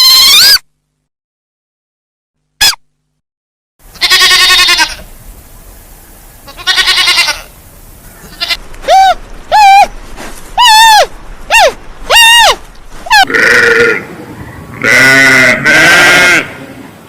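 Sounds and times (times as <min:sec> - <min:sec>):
goat bleating: 0:03.9 - 0:05.1, 0:06.4 - 0:07.6, 0:08.2 - 0:09.0, 0:13.0 - 0:14.1, 0:14.8 - 0:16.6.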